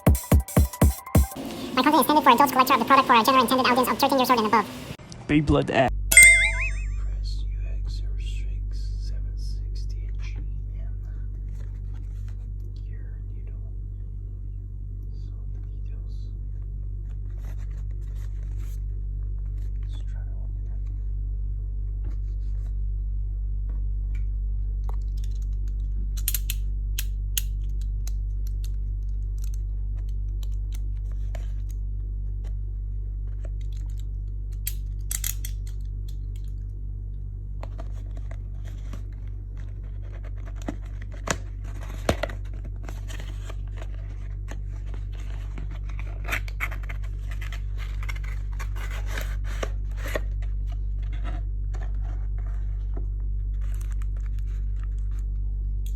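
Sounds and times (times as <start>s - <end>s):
low electrical hum: 1.4s - 55.9s
packaging clicks and snips: 25.0s - 31.0s, 33.5s - 36.6s.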